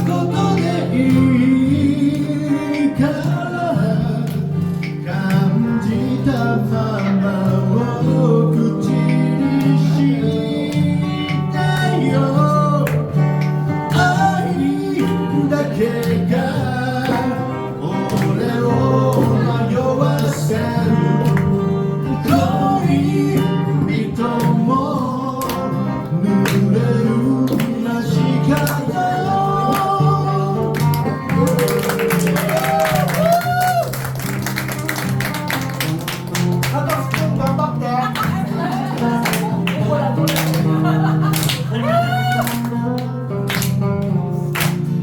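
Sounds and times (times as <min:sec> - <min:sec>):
live band with guitar lead: 0:00.0 - 0:45.0.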